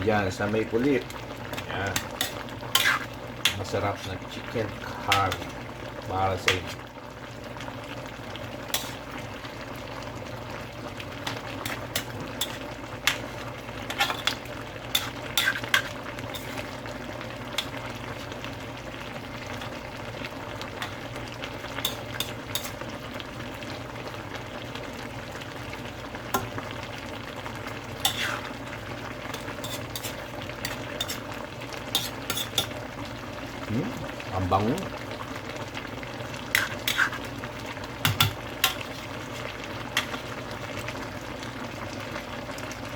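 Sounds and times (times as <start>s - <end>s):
food sizzling in a pan: 0.0s - 42.9s
spoon scraping a pan: 1.5s - 3.7s, 8.7s - 9.2s, 11.2s - 16.9s, 17.6s - 18.4s, 20.8s - 22.9s, 28.0s - 32.8s, 36.5s - 37.4s, 38.0s - 40.4s.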